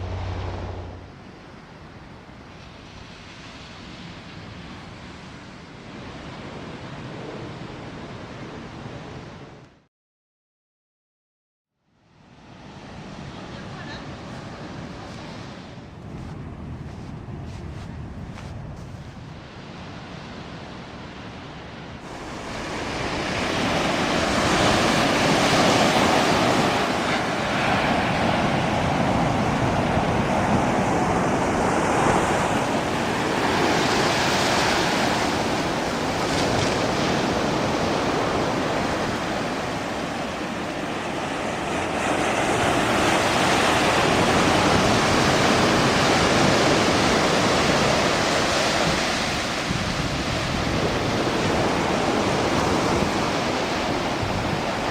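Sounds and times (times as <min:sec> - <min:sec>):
wind on microphone: 0:00.0 - 0:02.0, 0:13.8 - 0:21.0, 0:22.0 - 0:54.9
ocean surf washing onto beach: 0:12.4 - 0:54.9.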